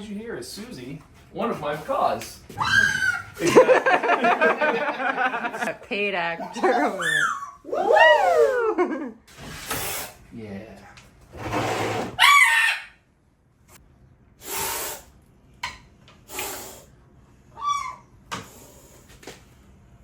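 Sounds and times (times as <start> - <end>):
macaw squawking: 6.6 - 7.6
short hissing bursts: 14.4 - 15.2, 16.3 - 17.0.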